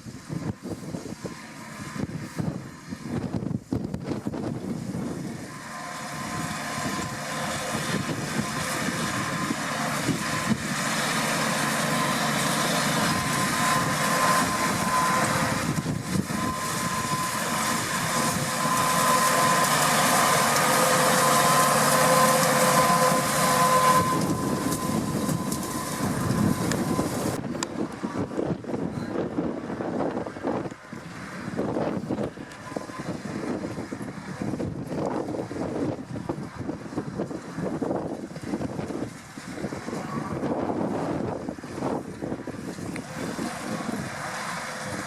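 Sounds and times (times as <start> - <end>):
rotary rake whine: 0.0 - 45.0
tractor engine under load: 0.0 - 45.0.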